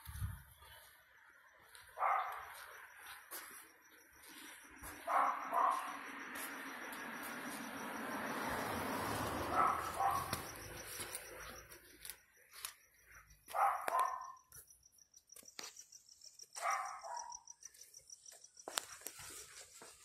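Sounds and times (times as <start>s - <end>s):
dog barking: 2.0s - 2.6s, 5.0s - 6.0s, 9.4s - 10.5s, 13.5s - 14.5s, 16.6s - 17.5s
faint high chirping: 9.4s - 19.6s.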